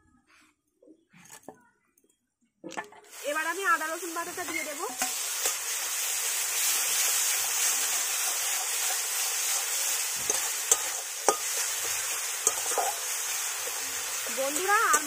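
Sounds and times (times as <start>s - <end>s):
food sizzling in a pan: 3.0s - 15.0s
metal spatula clicking on pan: 10.3s - 11.7s, 12.4s - 13.1s, 14.5s - 15.0s.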